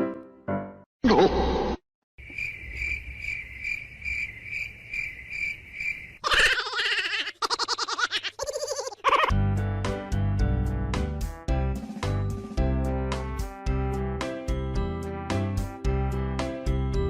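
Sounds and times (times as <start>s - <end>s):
cricket chirping: 2.2s - 6.2s.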